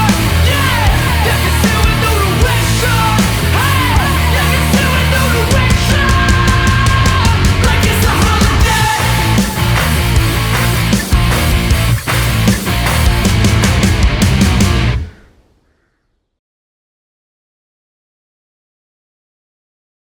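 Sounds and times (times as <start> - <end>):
loud hard rock music: 0.0 - 15.1.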